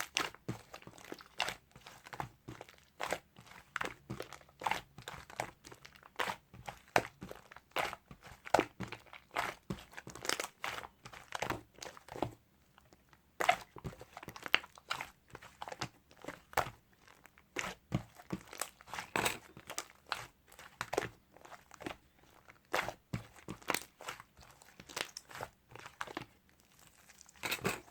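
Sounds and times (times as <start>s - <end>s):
slime crackling and popping: 13.4s - 27.9s.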